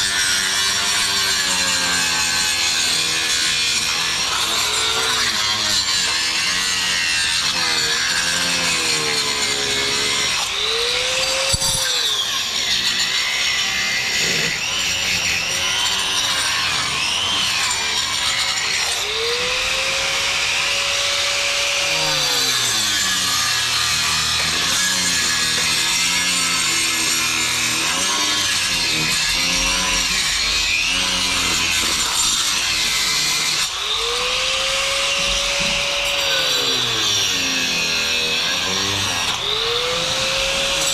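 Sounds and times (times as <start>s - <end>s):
power tool cutting: 0.0s - 40.9s.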